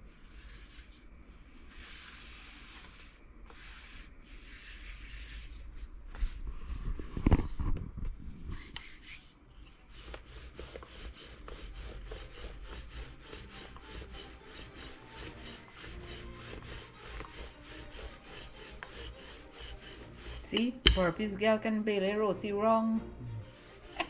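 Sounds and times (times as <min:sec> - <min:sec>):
rolling pin rolling dough on board: 0:01.7 - 0:05.4, 0:09.9 - 0:21.8, 0:23.5 - 0:24.0.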